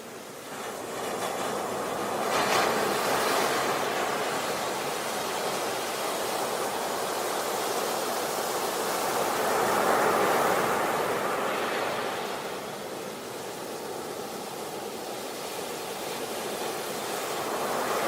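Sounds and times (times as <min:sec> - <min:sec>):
waves breaking on a beach: 0:00.0 - 0:18.0.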